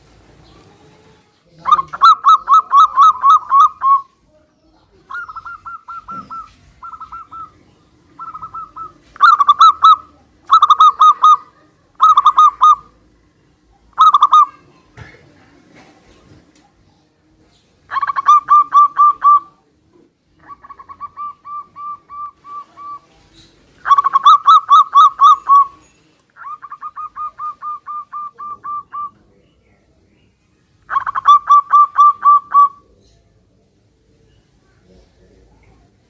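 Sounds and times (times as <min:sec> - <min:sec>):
distant dove cooing: 0:00.4 - 0:04.1, 0:04.9 - 0:13.1, 0:17.9 - 0:25.8, 0:26.4 - 0:29.3, 0:30.9 - 0:33.0
doves cooing: 0:00.5 - 0:04.1, 0:05.0 - 0:13.1, 0:13.9 - 0:14.5, 0:17.9 - 0:19.6, 0:20.3 - 0:25.8, 0:26.4 - 0:29.3, 0:30.9 - 0:32.9.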